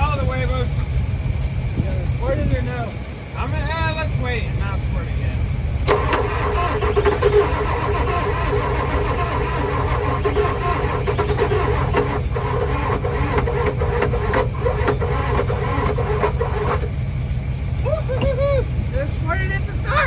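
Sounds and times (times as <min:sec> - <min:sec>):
diesel engine cranking: 0:00.0 - 0:20.0
starter motor whine: 0:05.8 - 0:18.4.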